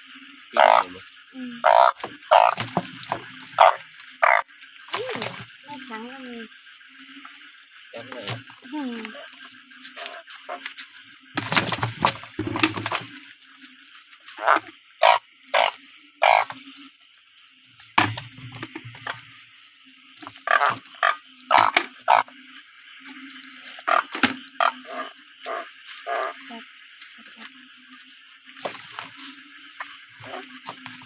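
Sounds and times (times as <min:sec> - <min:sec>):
distant frogs calling: 0:00.0 - 0:31.0
loud frog croaks: 0:00.4 - 0:05.8, 0:09.0 - 0:10.7, 0:14.3 - 0:17.0, 0:20.2 - 0:22.6, 0:23.8 - 0:27.5, 0:29.6 - 0:31.0.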